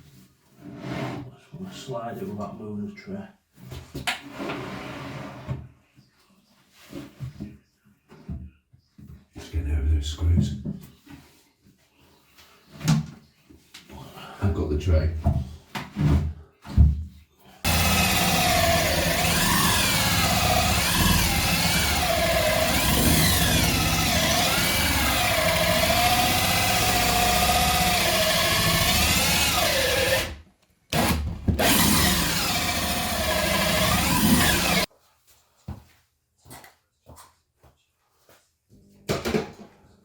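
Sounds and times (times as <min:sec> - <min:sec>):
motor running with wavering pitch: 0:17.7 - 0:30.4, 0:31.0 - 0:34.9.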